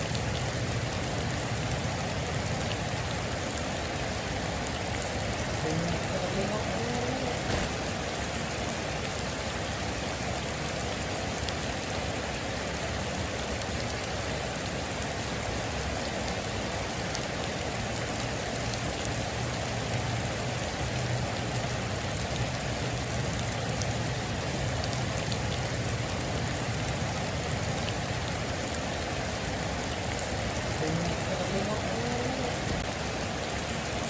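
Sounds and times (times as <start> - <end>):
heavy rain hissing: 0.0 - 34.0
sharp raindrop ticks: 17.0 - 29.0.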